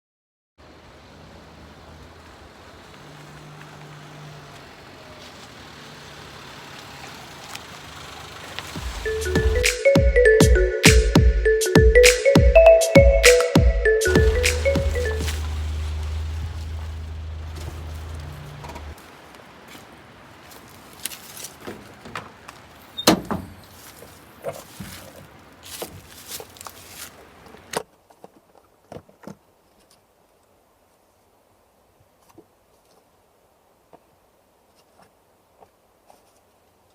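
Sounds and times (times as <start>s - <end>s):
vehicle engine running: 0.6s - 9.7s, 14.0s - 27.7s
low hum: 14.0s - 19.0s.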